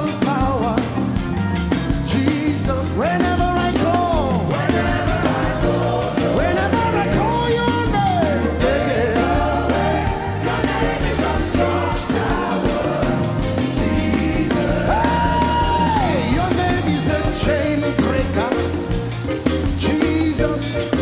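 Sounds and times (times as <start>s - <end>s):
band with steady bass: 0.0s - 21.0s
person singing gospel: 2.0s - 19.0s, 19.7s - 21.0s.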